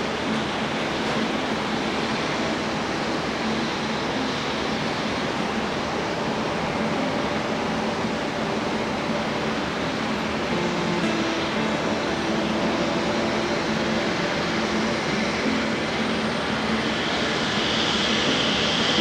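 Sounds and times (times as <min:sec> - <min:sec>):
high engine whine: 0:00.0 - 0:19.0
jet engines running: 0:00.0 - 0:19.0.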